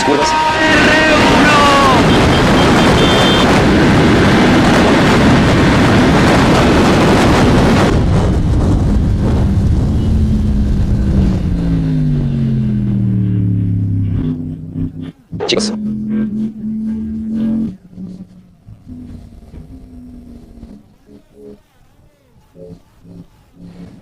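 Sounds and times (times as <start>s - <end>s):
loud rushing noise: 0.0s - 14.9s
motorcycle engine at speed: 0.2s - 21.6s.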